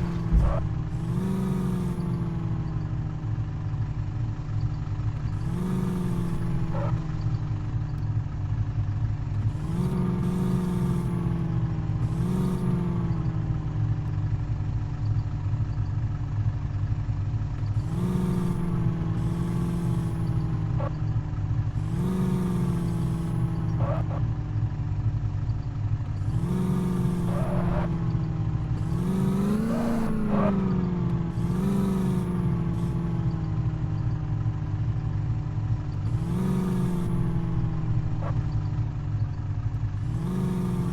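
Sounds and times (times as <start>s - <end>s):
truck engine revving: 0.0s - 3.2s, 5.1s - 7.7s, 9.4s - 13.6s, 17.7s - 24.4s, 26.1s - 34.7s, 35.6s - 40.9s.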